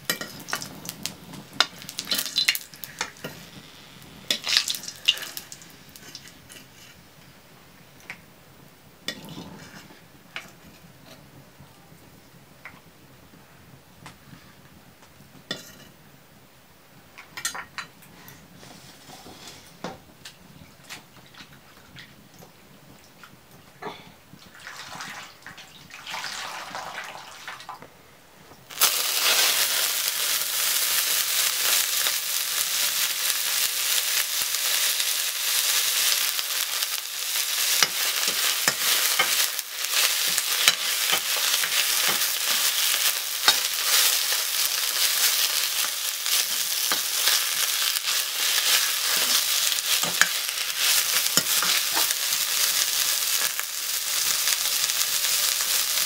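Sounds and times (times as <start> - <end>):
greens sizzling loudly: 0.1 - 6.3, 28.7 - 56.0.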